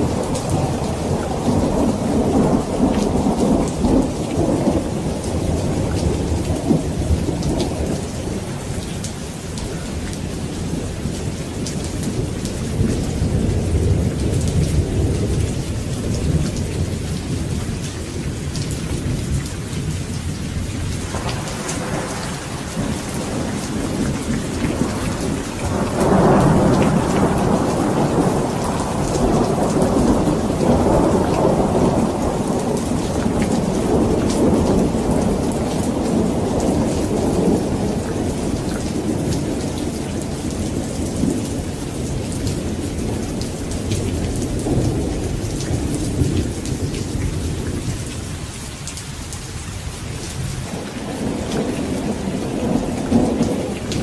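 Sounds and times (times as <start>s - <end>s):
rolling thunder: 0.0s - 48.5s, 49.8s - 54.0s
heavy rain: 0.0s - 54.0s.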